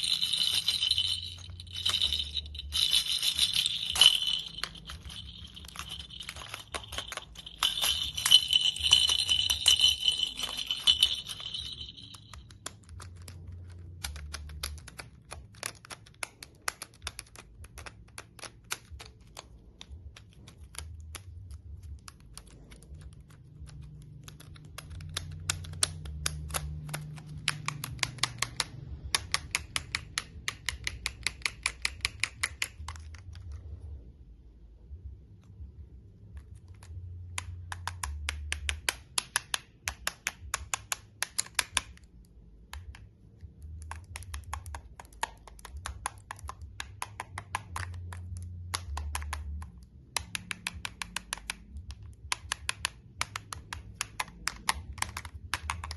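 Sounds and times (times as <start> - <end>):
toy rattling: 0.0 - 19.4
toy clicks and taps: 0.0 - 33.6, 36.2 - 55.9.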